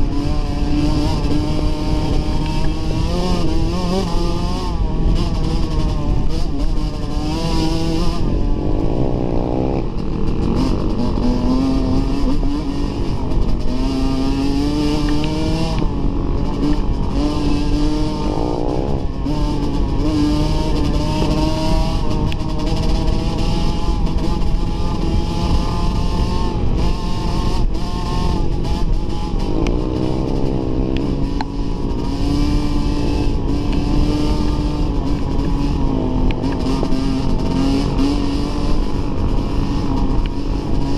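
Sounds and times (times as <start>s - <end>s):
dirt bike engine revving: 0.0s - 40.9s
wind noise: 0.0s - 40.9s.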